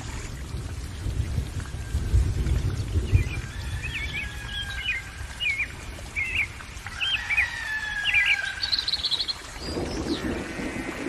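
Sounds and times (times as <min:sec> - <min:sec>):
songbird chirping: 0:02.7 - 0:10.8.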